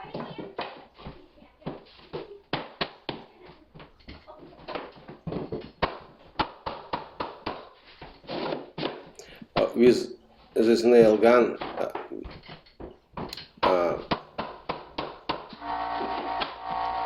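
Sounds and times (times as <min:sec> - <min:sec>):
rubber mallet knocking floorboards: 0:04.6 - 0:09.7, 0:11.6 - 0:15.6.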